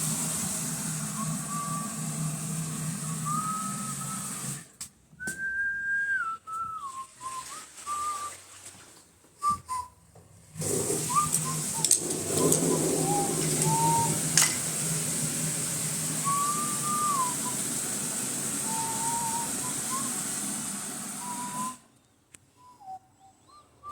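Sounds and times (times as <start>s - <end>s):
person whistling a tune: 1.1s - 2.0s, 3.0s - 8.4s, 9.4s - 10.0s, 11.1s - 14.2s, 16.2s - 17.6s, 18.6s - 20.2s, 21.2s - 21.9s, 22.5s - 23.9s.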